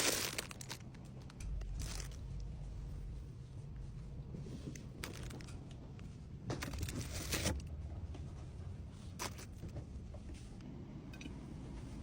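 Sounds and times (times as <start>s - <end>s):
packaging crinkling: 0.0s - 1.0s.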